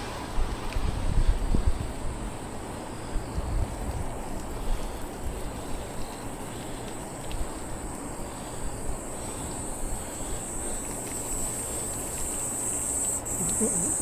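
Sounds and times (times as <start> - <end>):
insects shrilling: 7.5 - 14.0.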